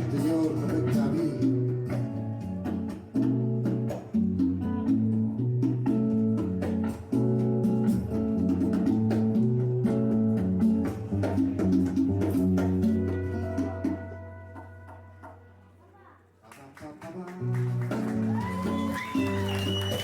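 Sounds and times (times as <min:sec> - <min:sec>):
plucked and strummed guitars: 0:00.0 - 0:15.7, 0:17.4 - 0:20.0
bass: 0:00.0 - 0:15.9, 0:17.3 - 0:20.0.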